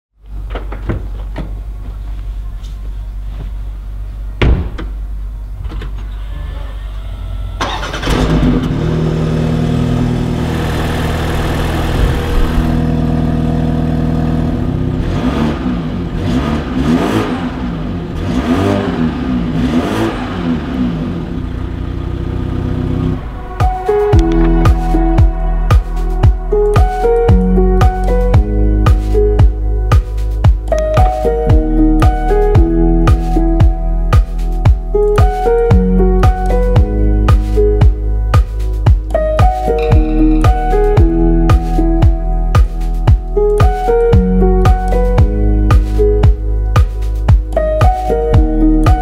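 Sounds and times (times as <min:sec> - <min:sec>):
thump: 0:04.4 - 0:04.9
car engine starting: 0:04.9 - 0:28.4
engine revving: 0:07.5 - 0:26.8.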